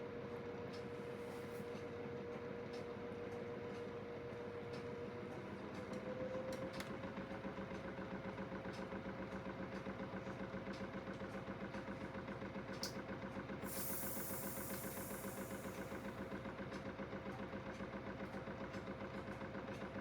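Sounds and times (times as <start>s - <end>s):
burst of hiss: 13.7s - 16.0s
washing machine motor whine: 13.7s - 16.1s.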